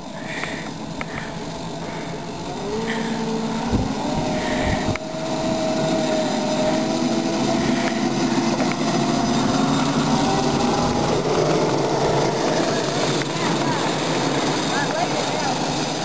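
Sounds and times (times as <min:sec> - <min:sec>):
small locomotive engine running: 0:00.0 - 0:16.0.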